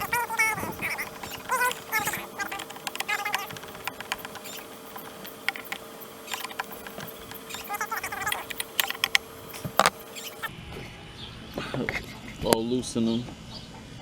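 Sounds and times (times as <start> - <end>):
metal tools clicking and tapping: 0.0 - 10.5.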